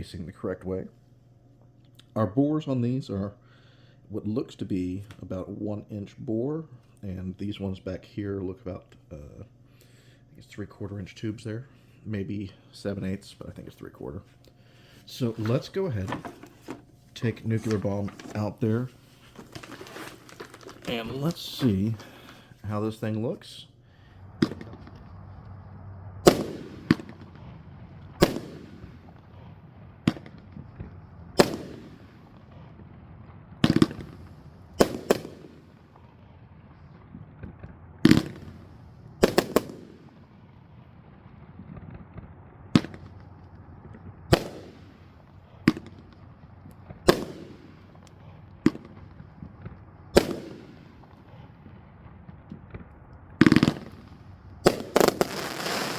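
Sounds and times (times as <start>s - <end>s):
firework cake bangs: 15.1s - 22.5s, 24.2s - 25.6s, 26.2s - 36.2s, 36.9s - 40.6s, 41.2s - 55.9s.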